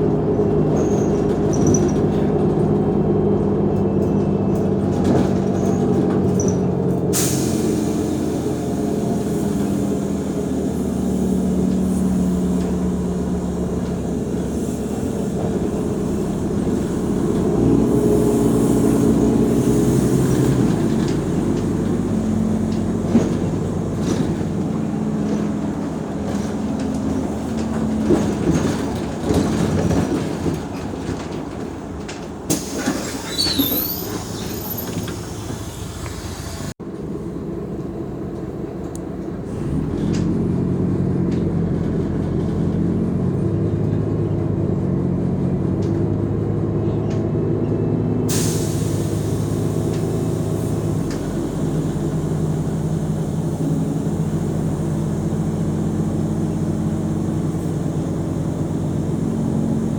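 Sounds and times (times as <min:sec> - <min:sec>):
bus engine running: 0:00.0 - 0:59.9
rumbling road noise: 0:00.0 - 0:59.9
short high squeal: 0:32.8 - 0:35.5
hiss: 0:48.3 - 0:57.8.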